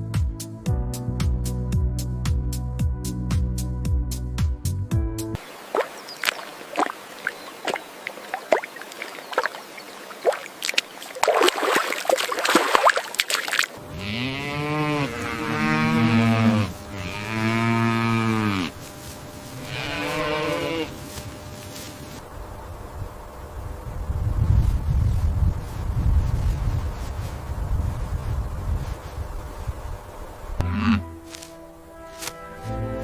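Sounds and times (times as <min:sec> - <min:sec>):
cattle mooing: 0:13.9 - 0:18.8, 0:19.5 - 0:21.0, 0:30.6 - 0:31.2
rustling: 0:18.7 - 0:22.3, 0:24.5 - 0:30.3, 0:31.2 - 0:32.8.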